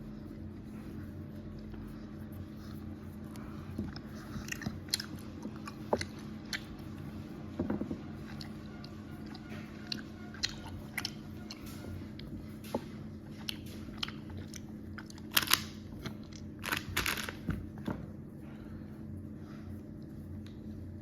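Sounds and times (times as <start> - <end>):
person chewing gummy candy: 1.3 - 17.7.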